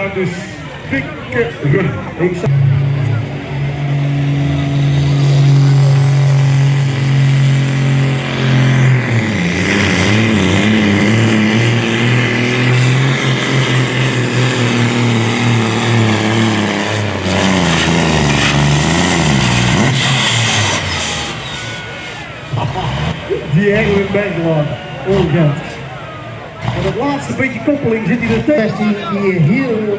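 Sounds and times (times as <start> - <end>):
truck diesel engine straining: 0.0 - 29.9.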